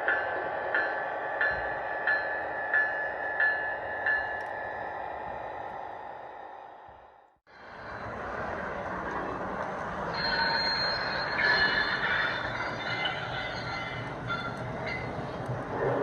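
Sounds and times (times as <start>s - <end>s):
recorded rail rumble from speaker: 3.8s - 16.0s
wheel flange squeal: 10.1s - 15.2s.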